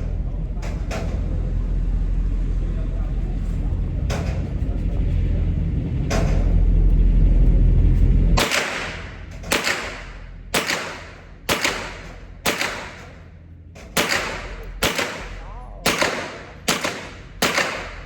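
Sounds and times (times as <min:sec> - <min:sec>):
heavy low rumble: 0:00.0 - 0:18.0
pistol shots: 0:08.4 - 0:13.2, 0:14.0 - 0:18.0.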